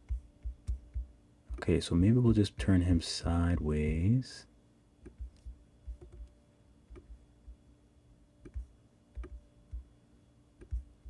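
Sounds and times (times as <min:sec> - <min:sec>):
computer mouse clicks: 0:05.0 - 0:06.3, 0:08.4 - 0:09.8.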